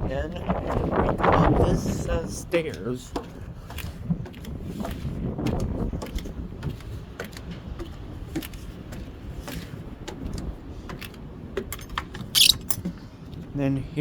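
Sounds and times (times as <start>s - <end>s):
footsteps climbing stairs: 2.6s - 13.0s.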